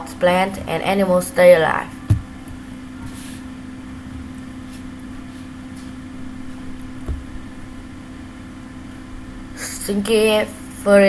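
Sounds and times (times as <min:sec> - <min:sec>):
electrical hum: 0:00.0 - 0:11.0
low thump: 0:02.1 - 0:02.3.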